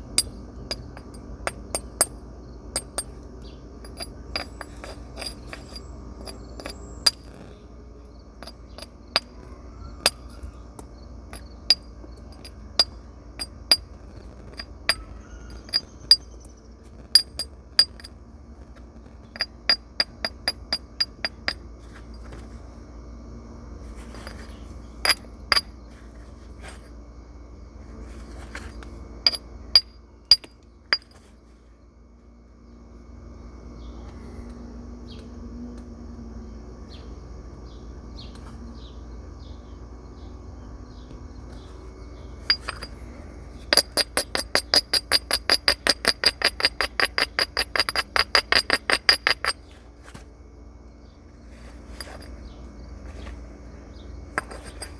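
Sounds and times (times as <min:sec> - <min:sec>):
light tapping on stone: 0:03.8 - 0:07.6, 0:08.4 - 0:21.6, 0:43.7 - 0:49.6.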